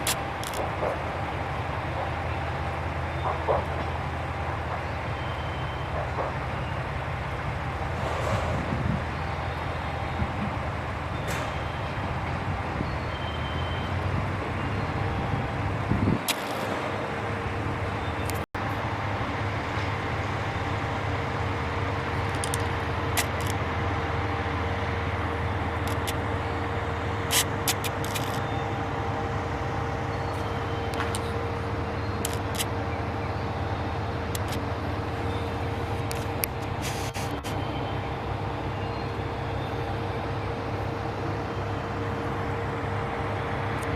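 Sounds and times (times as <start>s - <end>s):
diesel railcar engines idling: 0.0s - 43.9s.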